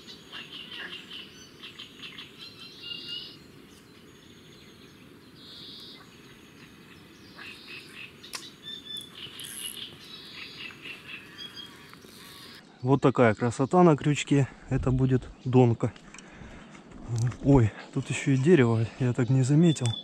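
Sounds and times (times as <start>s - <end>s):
birds chirping and calling: 0.0s - 14.2s, 15.2s - 20.0s
sharp click: 8.3s - 8.5s.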